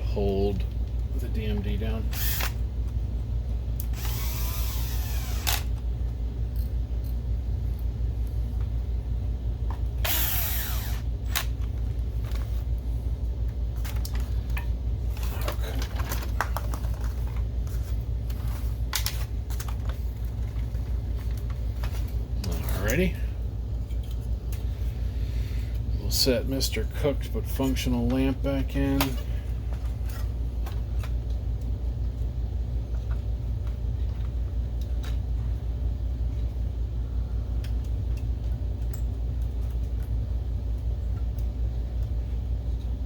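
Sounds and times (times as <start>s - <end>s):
steady low hum: 0.0s - 43.0s
electric screwdriver motor: 2.2s - 2.6s, 3.9s - 5.7s, 10.0s - 11.1s.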